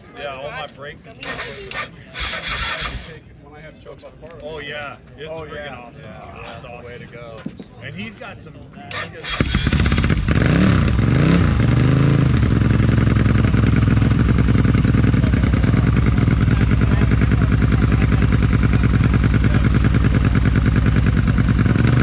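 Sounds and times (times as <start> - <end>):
motorcycle engine revving and idling: 1.2 - 3.2, 8.9 - 22.0.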